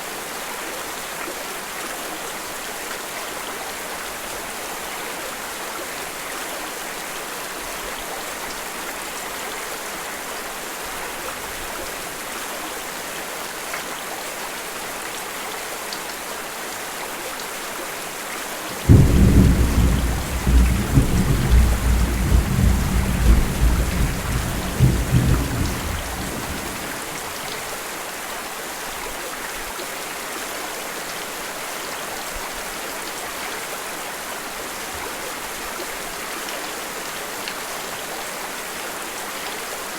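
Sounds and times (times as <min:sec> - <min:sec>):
steady rain hissing: 0:17.6 - 0:28.3
thunderclap rumbling: 0:18.7 - 0:27.4.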